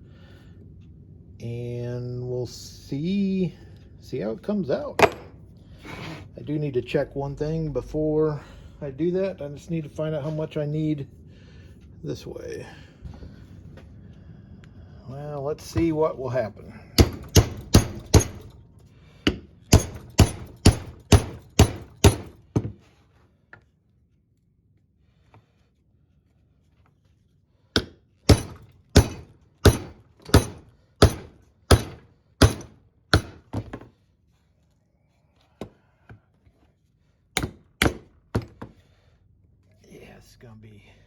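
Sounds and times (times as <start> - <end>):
hammer striking steel bar: 5.0 - 5.4, 17.0 - 18.5, 19.3 - 22.4, 27.8 - 33.5, 37.4 - 38.5.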